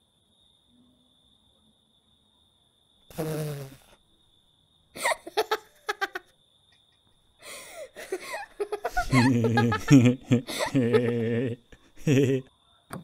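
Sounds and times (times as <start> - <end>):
crickets chirring: 0.0 - 13.0
man laughing: 5.0 - 6.3, 8.0 - 12.5.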